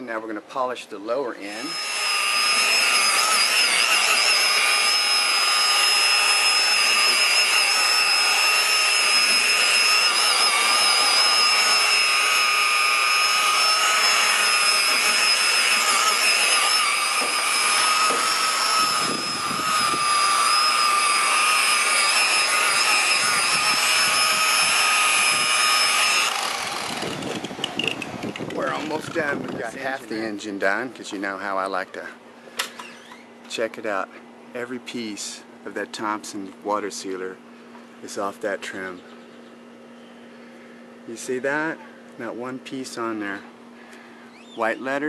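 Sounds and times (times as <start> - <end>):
electric polisher motor whine: 1.5 - 29.6.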